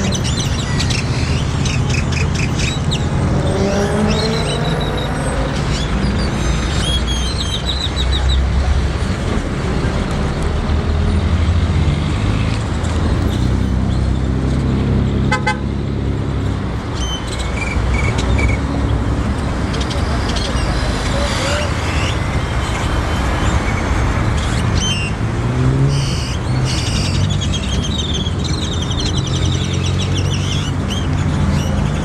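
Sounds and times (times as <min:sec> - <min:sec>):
city traffic rumble: 0:00.0 - 0:32.0
vehicle horn tooting: 0:15.3 - 0:15.7.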